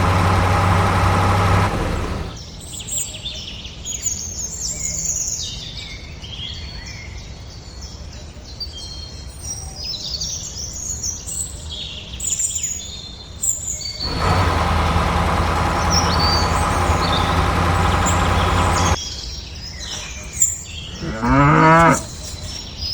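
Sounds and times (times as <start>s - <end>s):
loud mechanical running noise: 0.0s - 2.4s, 14.0s - 19.0s
small birds chirping: 0.0s - 2.4s, 14.0s - 19.0s
cow mooing: 21.0s - 22.1s.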